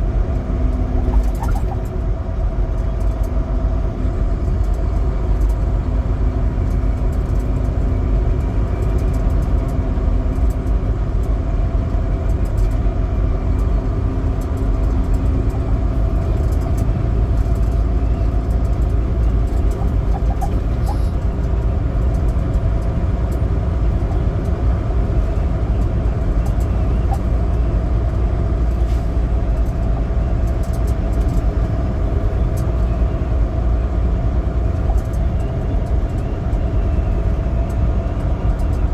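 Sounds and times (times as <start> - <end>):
road noise: 0.0 - 38.9
truck diesel engine rumbling: 0.0 - 38.9.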